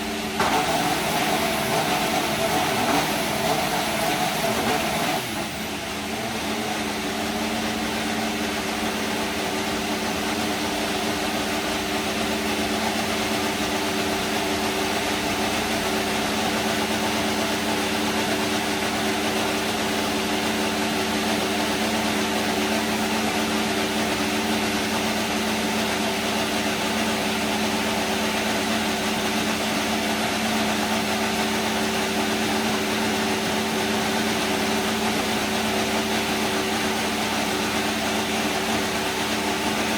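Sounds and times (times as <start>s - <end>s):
race car engine idling: 0.0s - 39.9s.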